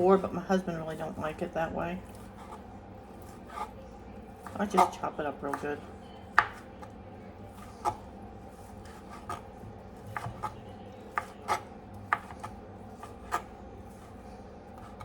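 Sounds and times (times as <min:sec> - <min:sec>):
knife chopping on cutting board: 0:04.4 - 0:05.7, 0:06.3 - 0:06.9, 0:07.5 - 0:15.0.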